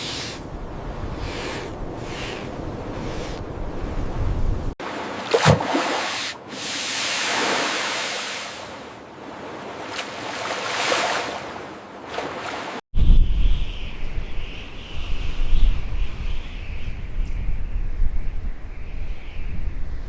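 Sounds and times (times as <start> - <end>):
wind rumble on microphone: 0.3 - 4.8, 13.0 - 20.0
waves rushing: 0.7 - 12.8.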